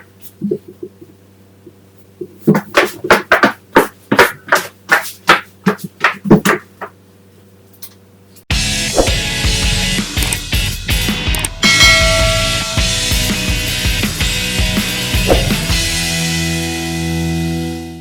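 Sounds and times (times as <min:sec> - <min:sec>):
high heels clicking on hard floor: 0:02.5 - 0:07.0
music: 0:08.5 - 0:18.0.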